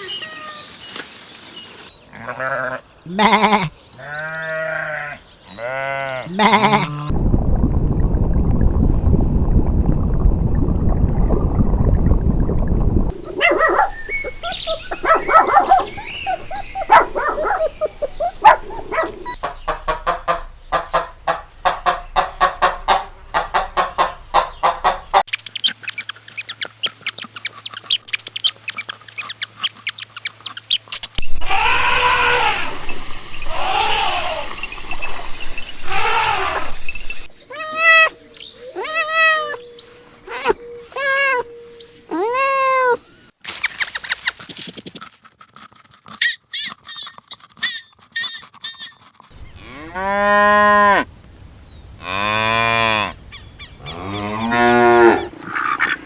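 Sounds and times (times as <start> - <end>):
sheep or goats bleating: 2.2 - 7.1
short animal calls: 13.1 - 19.4.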